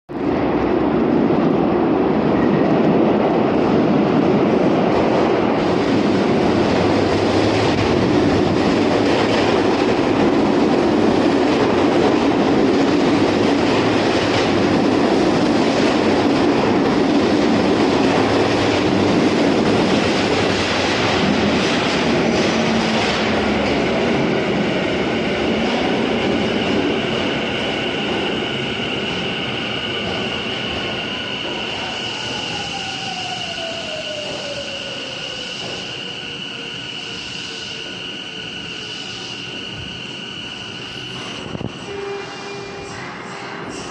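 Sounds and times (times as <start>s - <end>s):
high steady brake squeal: 30.3s - 43.9s.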